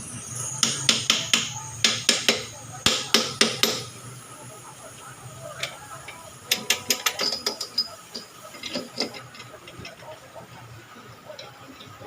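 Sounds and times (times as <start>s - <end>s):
metal tools clinking and tapping: 0.6s - 3.9s, 5.6s - 10.2s.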